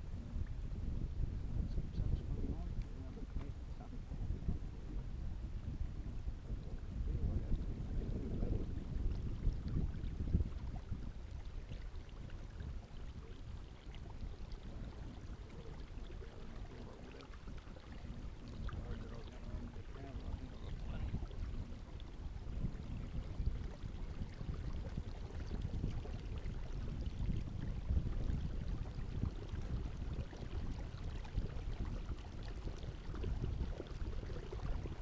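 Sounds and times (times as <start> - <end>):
wind rumbling on microphone: 0.0 - 35.0
water splashing and lapping: 8.0 - 35.0.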